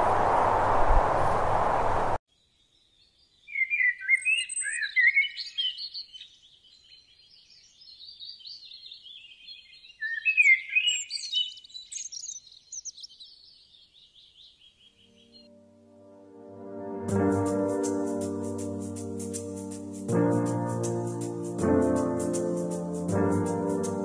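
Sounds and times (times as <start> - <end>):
songbirds chirping and warbling: 2.3 - 15.5.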